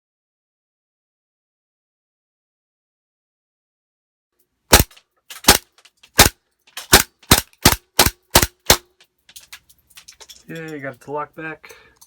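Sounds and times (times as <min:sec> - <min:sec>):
airsoft pistol shots: 0:04.7 - 0:08.9.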